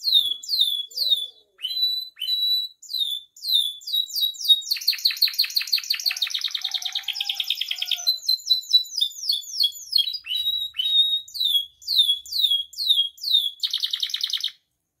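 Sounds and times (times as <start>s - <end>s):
canary singing: 0.0s - 14.6s.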